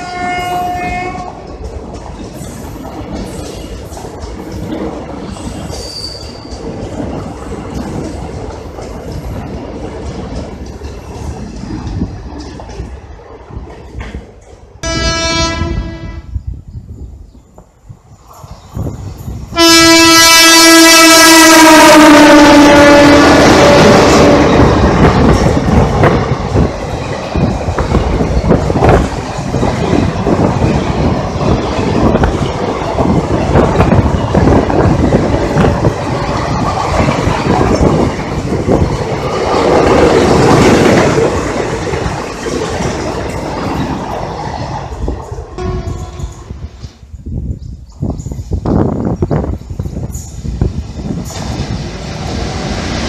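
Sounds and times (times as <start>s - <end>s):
locomotive horn blast: 0.0s - 1.3s, 14.8s - 16.3s, 19.5s - 24.6s, 45.6s - 46.6s
train wheels clickety-clack: 0.0s - 14.9s, 23.2s - 53.0s.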